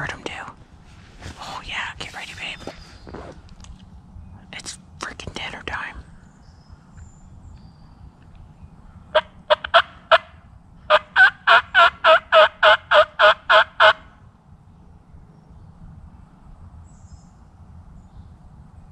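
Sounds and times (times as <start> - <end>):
wild turkey yelping: 10.9 - 14.0.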